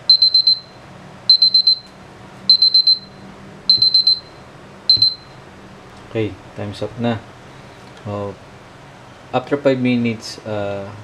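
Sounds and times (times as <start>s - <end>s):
smartphone timer alarm beeping: 0.0s - 5.4s.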